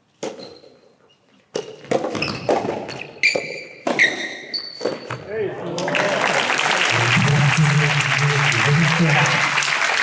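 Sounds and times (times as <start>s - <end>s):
shoe squeaks: 0.3s - 1.4s, 2.2s - 5.2s.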